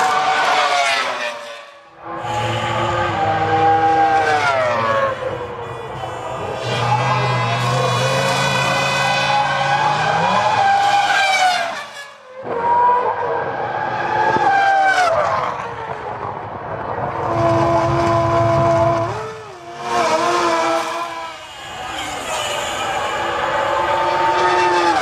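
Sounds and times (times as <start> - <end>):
racing car engines at high revs: 0.0 - 25.0.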